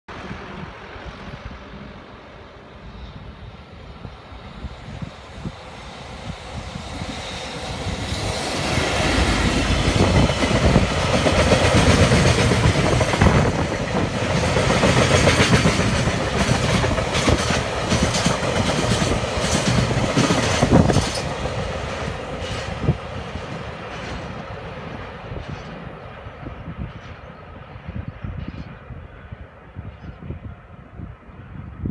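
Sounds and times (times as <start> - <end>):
train rumble: 0.1 - 31.7
wheels clacking over rail joints: 8.1 - 24.7.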